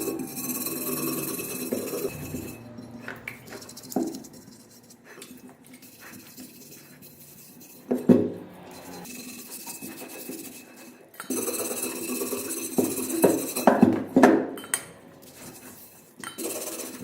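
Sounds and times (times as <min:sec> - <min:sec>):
metal tools clinking: 0:00.0 - 0:05.0.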